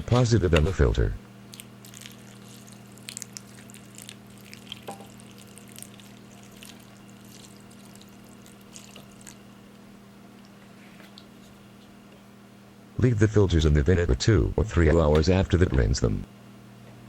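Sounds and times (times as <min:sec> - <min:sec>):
steady low hum: 0:00.0 - 0:17.0
liquid splashing and dripping: 0:01.5 - 0:09.8, 0:10.4 - 0:11.5.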